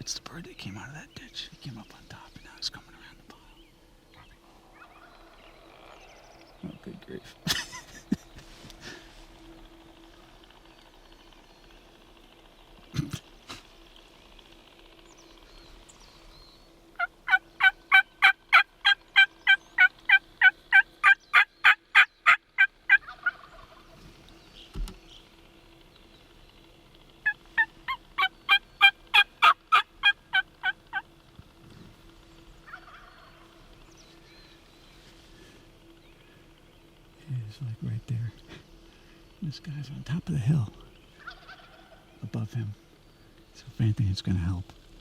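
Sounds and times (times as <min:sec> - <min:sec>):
turkey yelping: 0:04.7 - 0:05.2, 0:17.0 - 0:24.0, 0:27.2 - 0:31.1, 0:32.6 - 0:33.6, 0:41.2 - 0:42.1.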